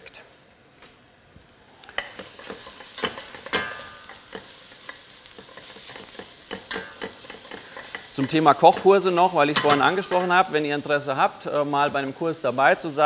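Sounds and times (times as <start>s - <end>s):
onion sizzling in oil: 1.4s - 13.0s
spoon knocking and scraping pan: 1.9s - 10.5s.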